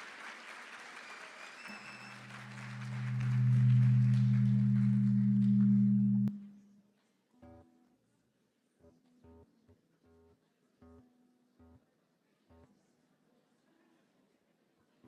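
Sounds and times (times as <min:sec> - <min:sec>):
applause: 0:00.0 - 0:06.2
low electrical hum: 0:01.7 - 0:06.8.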